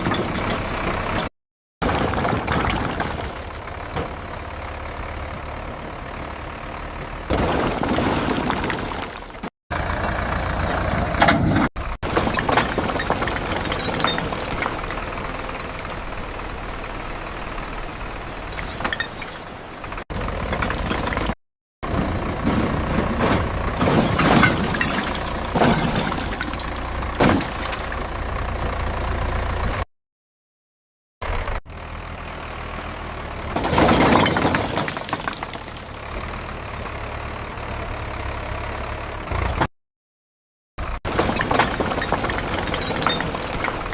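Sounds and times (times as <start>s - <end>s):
tractor engine running: 0.0s - 1.3s, 1.9s - 7.8s, 8.5s - 18.6s, 19.5s - 25.6s, 26.6s - 29.8s, 35.8s - 39.7s, 40.8s - 43.9s.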